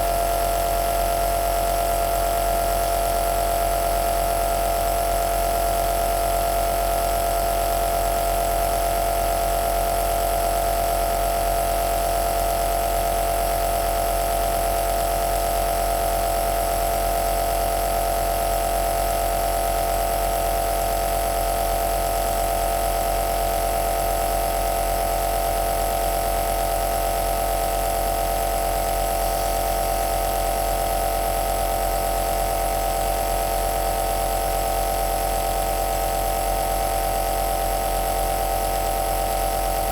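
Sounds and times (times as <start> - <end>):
nebulizer compressor humming: 28.6 - 33.4.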